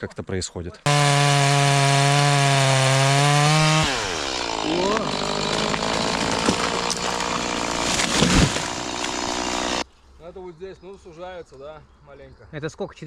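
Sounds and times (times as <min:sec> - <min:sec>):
engine revving: 0:00.9 - 0:09.8.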